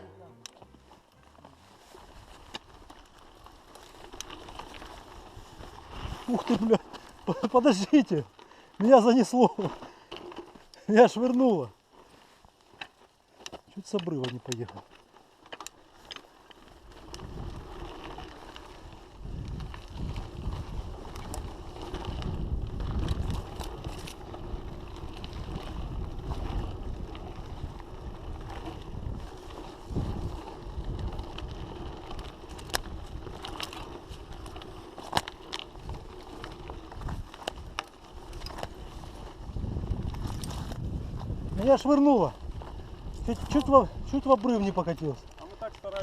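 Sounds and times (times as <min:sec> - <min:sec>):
wind buffeting microphone: 0:16.9 - 0:46.0.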